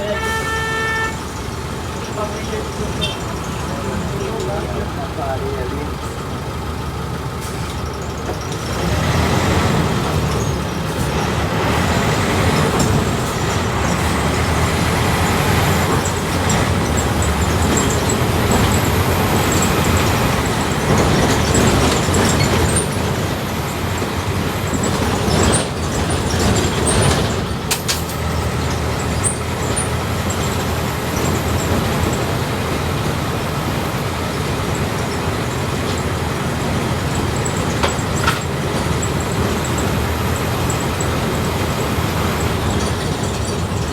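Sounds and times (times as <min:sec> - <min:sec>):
bus engine droning: 0:00.0 - 0:43.9
sharp knocks and rattles: 0:09.6 - 0:32.4, 0:34.7 - 0:43.9.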